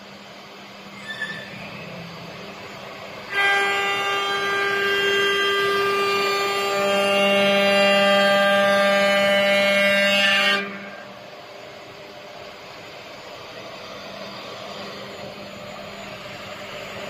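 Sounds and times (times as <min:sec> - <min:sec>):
cnc router whine: 0:00.0 - 0:17.0
deep machine tone: 0:00.8 - 0:07.8, 0:12.4 - 0:17.0.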